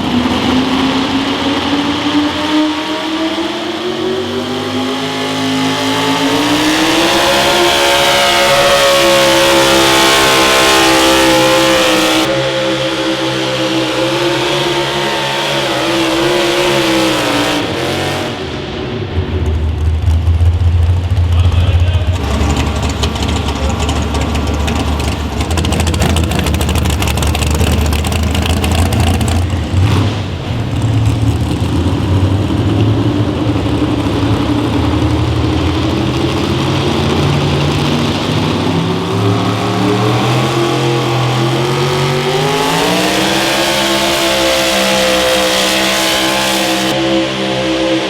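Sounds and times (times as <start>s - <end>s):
engine running hard under load: 0.0s - 48.0s.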